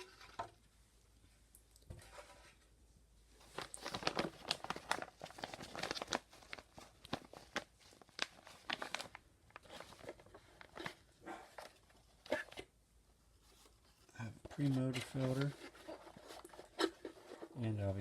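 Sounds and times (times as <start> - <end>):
plastic packaging crinkling: 3.4 - 12.6, 14.5 - 17.7.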